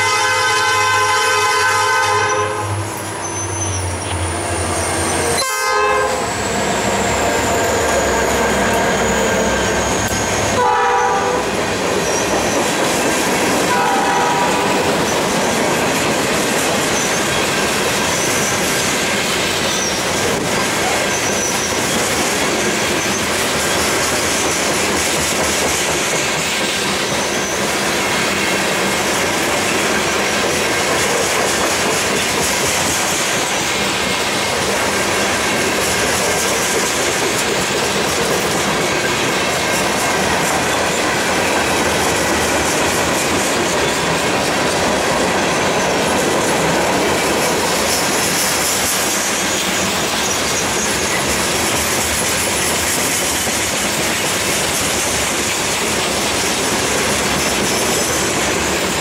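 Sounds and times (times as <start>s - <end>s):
steel wheels rumbling on rail: 0.0s - 59.0s
wheel squeal: 2.3s - 5.4s, 6.2s - 11.2s, 12.0s - 12.8s, 16.8s - 18.9s, 19.6s - 20.2s, 20.8s - 22.2s, 27.0s - 27.7s, 48.0s - 52.0s
clickety-clack over rail joints: 6.4s - 59.0s.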